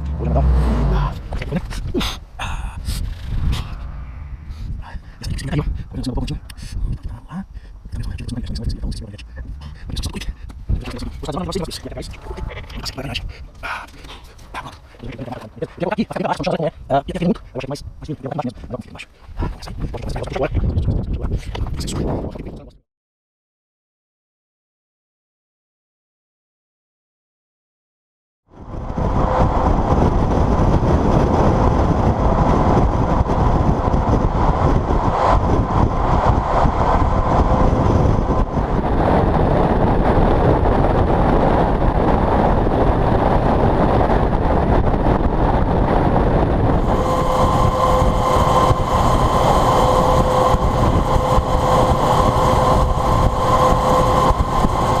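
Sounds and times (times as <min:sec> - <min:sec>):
truck traffic on highway: 0:00.0 - 0:05.2, 0:28.6 - 0:55.0
thin steady whine: 0:46.7 - 0:55.0.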